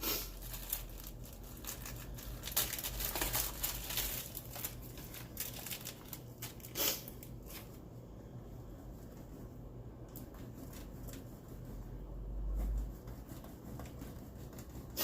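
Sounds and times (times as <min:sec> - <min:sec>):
plastic packaging crinkling: 0:00.1 - 0:07.9.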